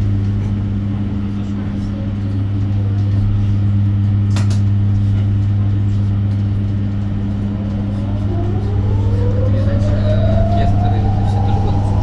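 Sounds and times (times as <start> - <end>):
bus cabin low hum: 0.0 - 12.0
electric motor whine rising: 7.5 - 12.0.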